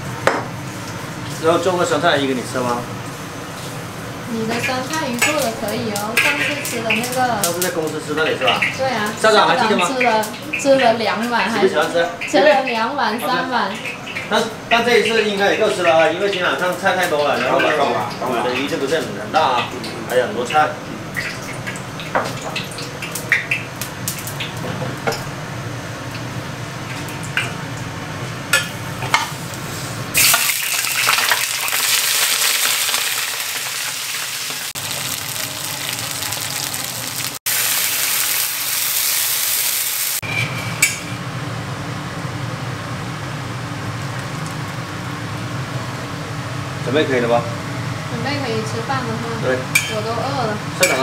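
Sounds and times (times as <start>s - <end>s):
fish frying in hot oil: 3.2s - 25.1s, 25.9s - 40.2s.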